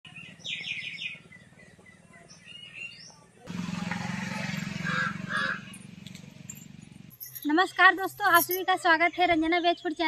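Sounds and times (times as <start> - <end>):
small birds chirping: 0.1 - 3.5.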